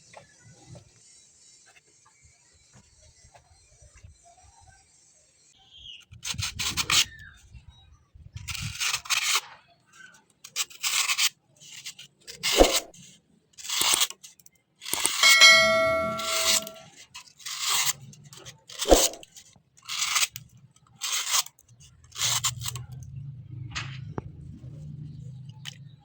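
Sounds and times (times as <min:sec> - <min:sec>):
metallic ring: 0:15.2 - 0:16.9.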